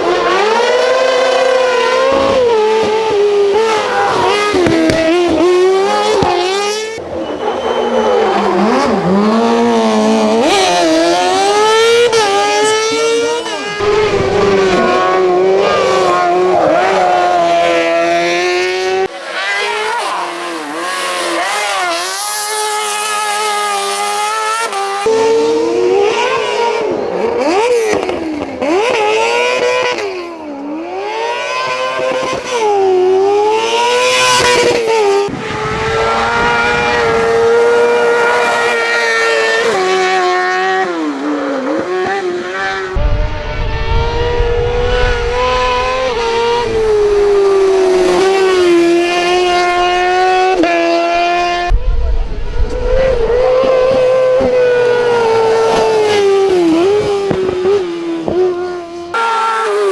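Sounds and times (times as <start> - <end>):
motorcycle engine revving hard: 0.0 - 7.1, 8.2 - 59.9.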